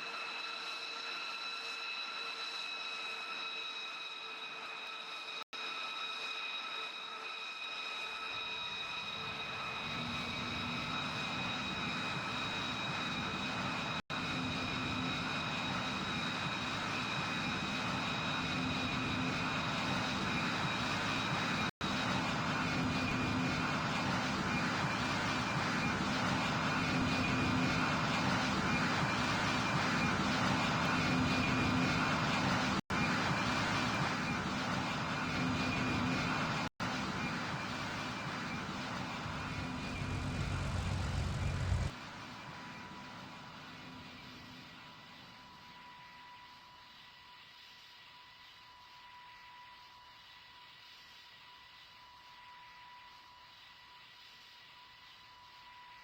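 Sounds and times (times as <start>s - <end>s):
airplane engines whining: 0.0s - 47.8s.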